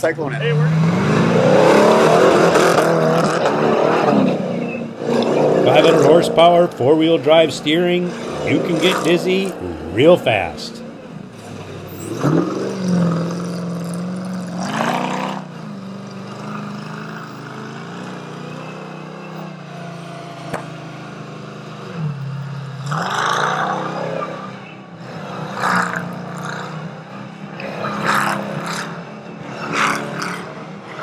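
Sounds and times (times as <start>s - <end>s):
truck engine running: 5.4s - 14.4s.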